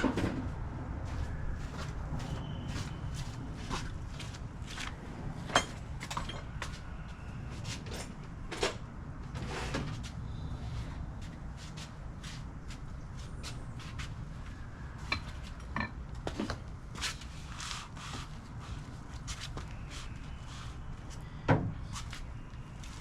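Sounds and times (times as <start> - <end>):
steady low rumble: 0.4 - 7.5.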